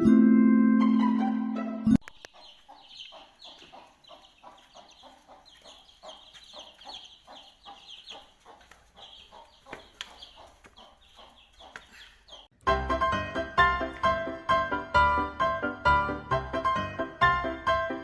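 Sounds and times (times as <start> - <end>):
poultry chirping and clucking: 2.0 - 12.5.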